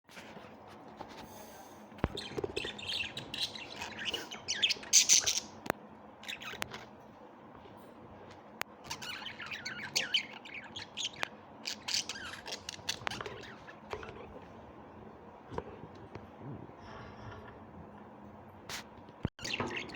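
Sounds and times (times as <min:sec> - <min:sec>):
birds squawking and chirping: 0:02.0 - 0:07.0, 0:08.7 - 0:14.6, 0:19.4 - 0:19.9.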